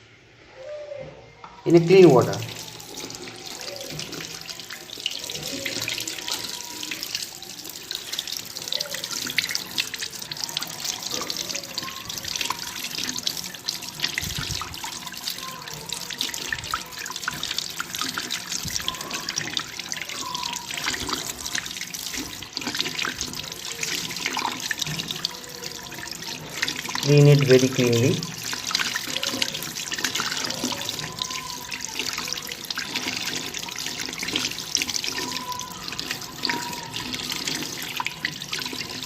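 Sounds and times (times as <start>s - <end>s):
tap water running and splashing: 1.7s - 39.0s.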